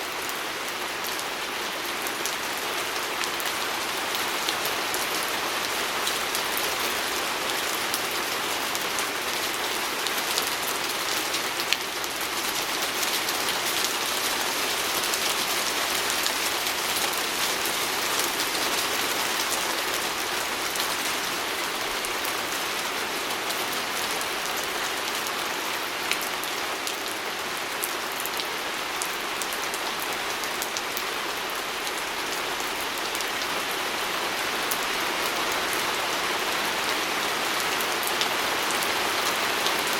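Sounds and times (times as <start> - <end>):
rain pattering on a window: 0.1 - 39.9.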